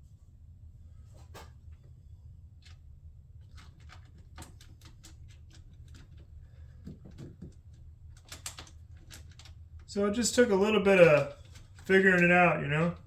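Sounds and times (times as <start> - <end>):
steady low hum: 9.0 - 13.0.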